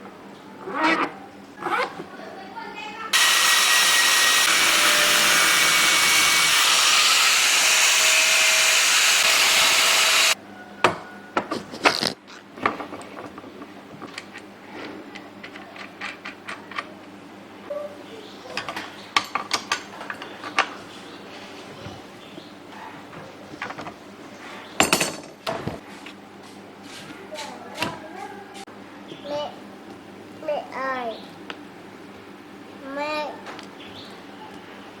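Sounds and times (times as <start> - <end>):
workshop tool hissing: 3.2 - 10.4.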